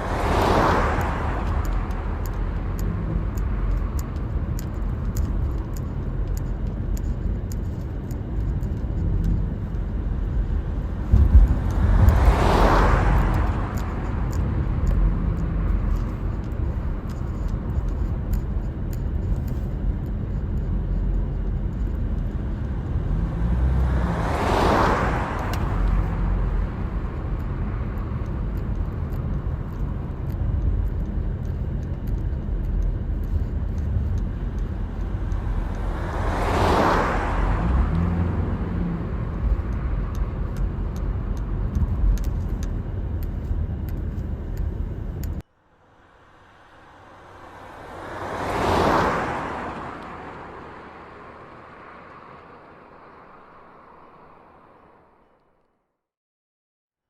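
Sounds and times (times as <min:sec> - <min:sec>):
vehicles rushing past: 0:00.0 - 0:55.6
car driving on road rumble: 0:00.0 - 0:55.7.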